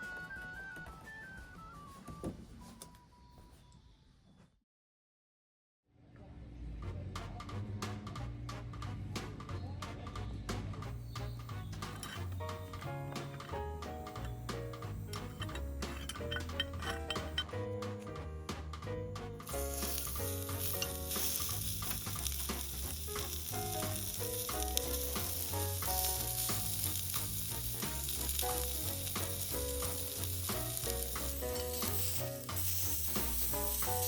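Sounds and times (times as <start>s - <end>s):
food sizzling in a pan: 11.2s - 17.4s, 19.4s - 34.0s.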